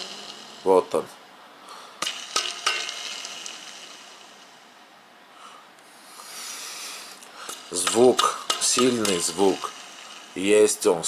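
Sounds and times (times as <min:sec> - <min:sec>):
pulley clicks: 0:00.0 - 0:01.1, 0:02.0 - 0:04.7, 0:07.3 - 0:10.7
pulley bearing grinding hiss: 0:00.0 - 0:04.9, 0:05.5 - 0:11.0.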